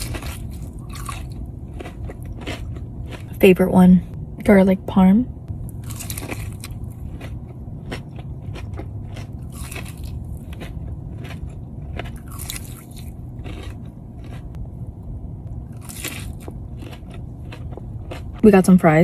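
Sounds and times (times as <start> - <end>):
crunchy bites: 0.0 - 3.4, 5.7 - 14.6, 15.7 - 18.4
wet chewing: 0.0 - 3.4, 5.7 - 14.6, 15.7 - 18.4.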